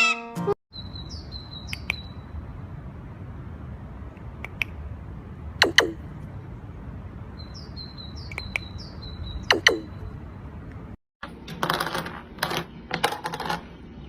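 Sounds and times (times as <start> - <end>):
pet birds chirping: 0.7 - 2.7, 3.4 - 10.9
loud sharp bird calls: 0.8 - 2.4, 5.6 - 6.2, 7.2 - 10.2.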